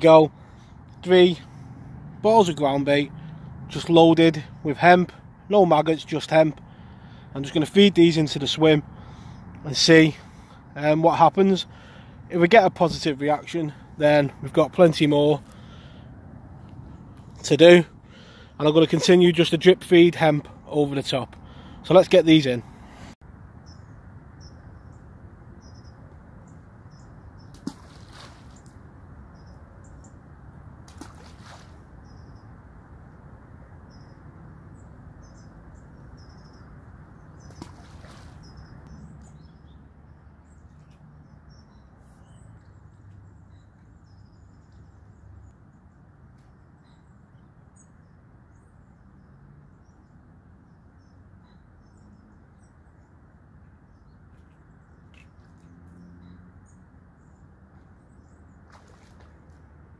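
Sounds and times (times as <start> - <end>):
small birds chirping and twittering: 0.0 - 59.7
low outdoor rustle: 26.0 - 30.2, 30.8 - 32.4.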